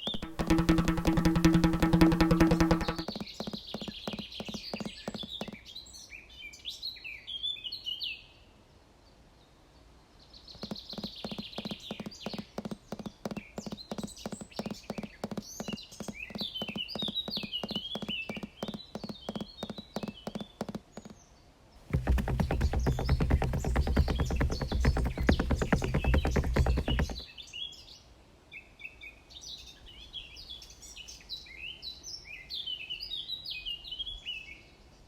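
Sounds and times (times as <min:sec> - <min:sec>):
footsteps on a trail: 0:10.6 - 0:21.2.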